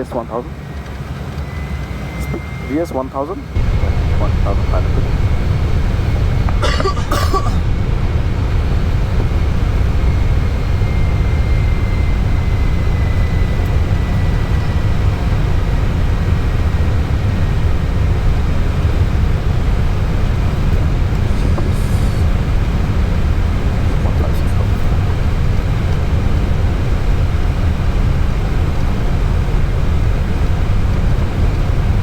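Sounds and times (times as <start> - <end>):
cockpit airflow and engine rumble: 0.0 - 32.0
cough-like burst of noise: 6.6 - 7.7.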